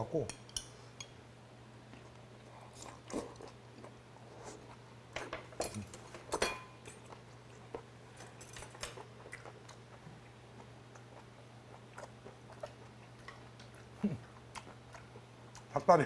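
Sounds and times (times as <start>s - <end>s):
person chewing food: 1.9s - 4.9s, 8.8s - 15.7s.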